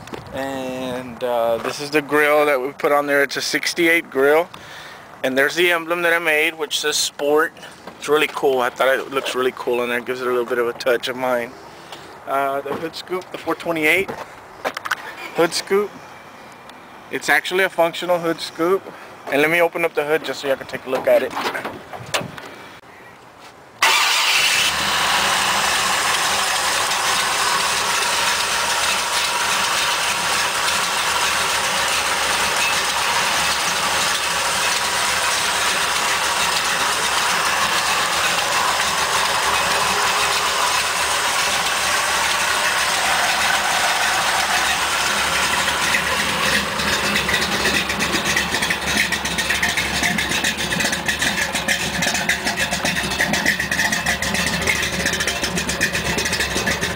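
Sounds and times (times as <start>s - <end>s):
truck engine running: 23.8s - 56.9s.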